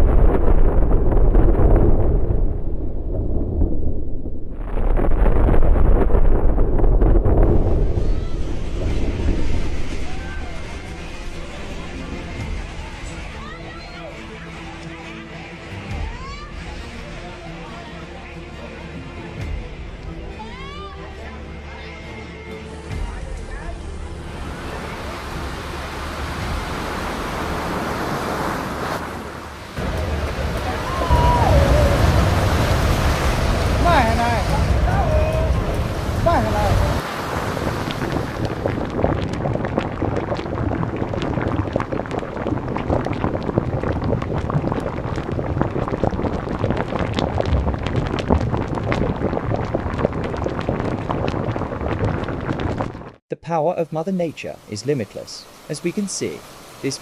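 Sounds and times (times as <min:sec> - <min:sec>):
fast-flowing water roaring: 0:07.2 - 0:14.0, 0:24.0 - 0:53.2, 0:54.2 - 0:57.0.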